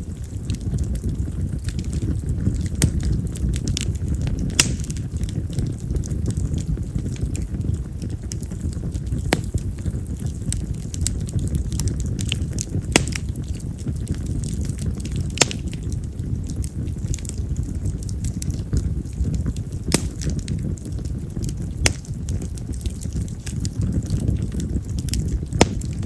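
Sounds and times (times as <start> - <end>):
fire pops and crackles: 0.0 - 26.0
low fire rumble: 0.0 - 26.0.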